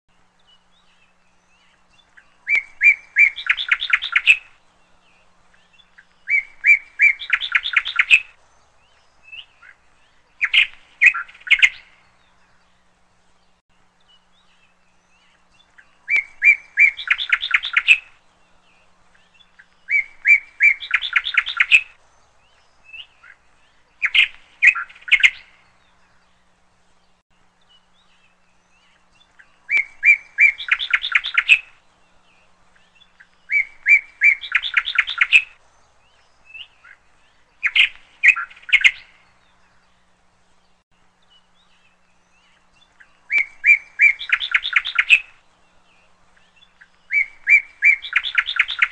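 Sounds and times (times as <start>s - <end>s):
bird singing short phrase: 41.3s - 48.9s.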